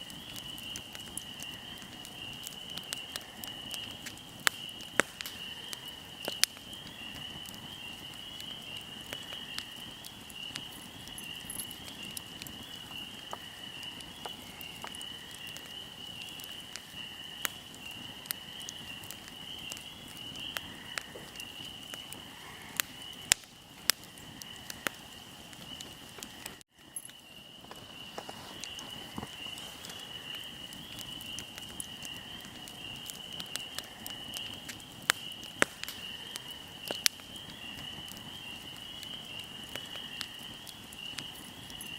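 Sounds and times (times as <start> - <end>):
fire crackling and popping: 0.0 - 41.9
high-pitched insect trill: 9.3 - 15.5.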